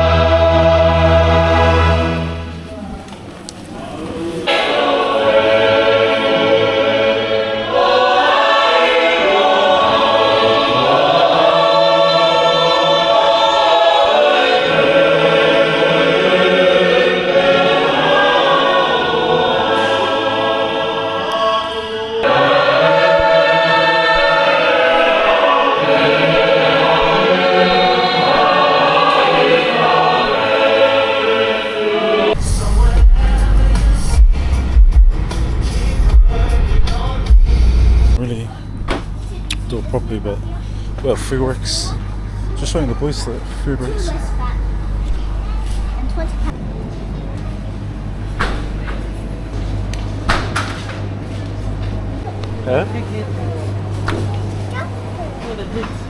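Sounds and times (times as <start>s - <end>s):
choir singing a hymn: 0.0s - 2.8s, 3.8s - 37.4s.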